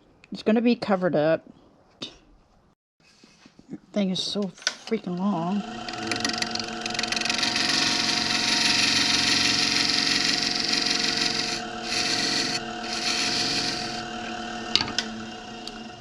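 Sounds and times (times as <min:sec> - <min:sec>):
power tool motor hum: 0:05.4 - 0:16.0.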